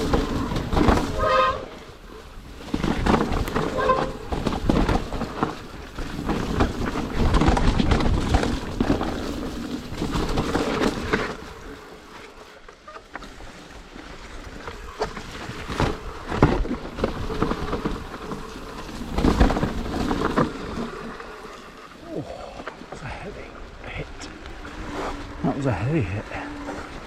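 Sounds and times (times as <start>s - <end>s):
bike tyre and frame noise: 0.0s - 27.0s
bike knocking over bumps: 2.6s - 11.7s, 14.6s - 21.4s.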